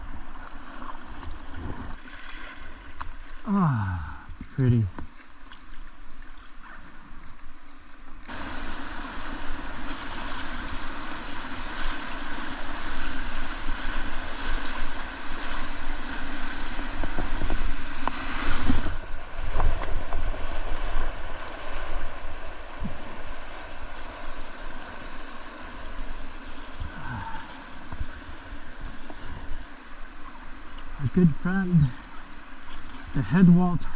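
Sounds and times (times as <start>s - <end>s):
rushing whitewater: 8.2s - 33.9s
wind rumbling on microphone: 8.3s - 30.4s.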